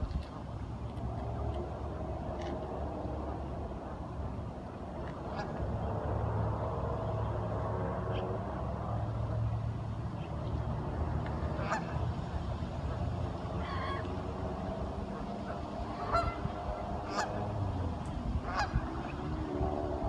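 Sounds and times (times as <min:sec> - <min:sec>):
waterfowl calling: 0:11.5 - 0:14.4, 0:15.0 - 0:17.7, 0:18.4 - 0:19.4.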